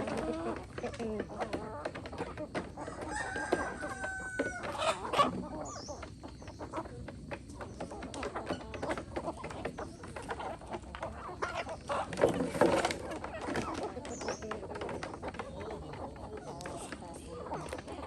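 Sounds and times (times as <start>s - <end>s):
chickens clucking: 0.0s - 18.0s
rooster crowing: 2.8s - 5.0s.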